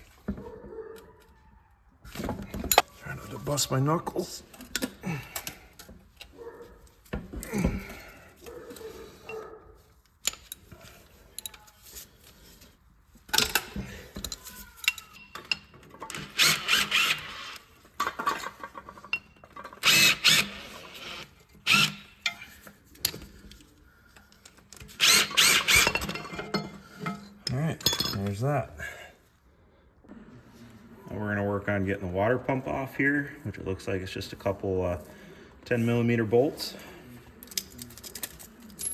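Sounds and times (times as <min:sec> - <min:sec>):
metal tools clinking: 0:02.3 - 0:06.3, 0:10.1 - 0:20.2, 0:21.1 - 0:28.5, 0:36.7 - 0:38.9
hand ratchet clicking: 0:16.1 - 0:17.6.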